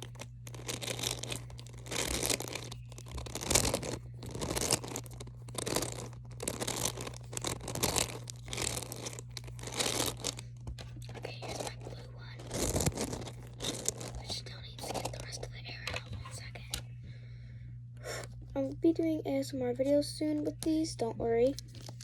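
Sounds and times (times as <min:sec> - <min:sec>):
beads crackling in squishy toy: 0:00.0 - 0:16.8, 0:21.5 - 0:22.0.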